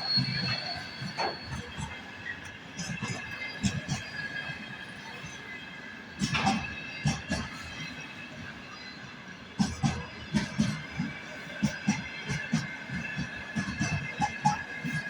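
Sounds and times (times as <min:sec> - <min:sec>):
high-pitched wheel squeal: 0:00.0 - 0:02.2.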